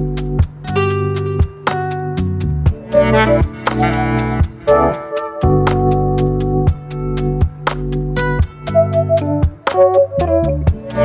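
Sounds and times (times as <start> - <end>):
sharp percussion beat: 2.7 - 10.1
synth chords and melody: 2.8 - 7.0, 8.7 - 11.0.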